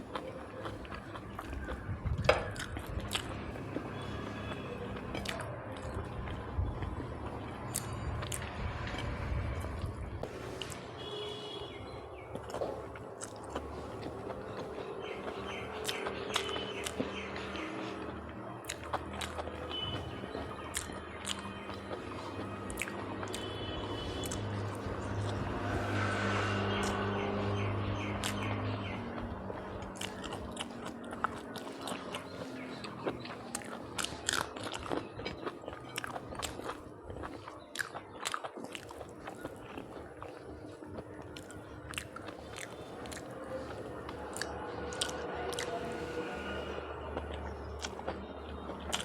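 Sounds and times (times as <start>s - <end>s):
person chewing food: 0.0s - 49.0s.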